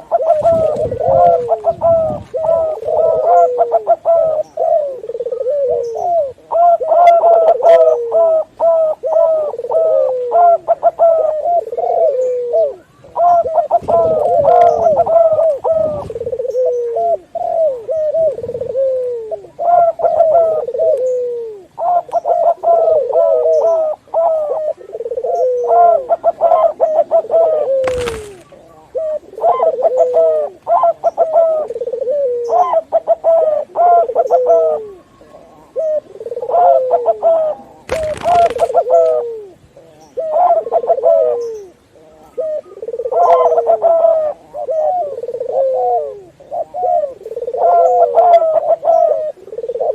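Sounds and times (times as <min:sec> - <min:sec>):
doves cooing: 0:00.0 - 0:49.9
scratchy noise bursts: 0:27.8 - 0:28.6, 0:37.9 - 0:38.8.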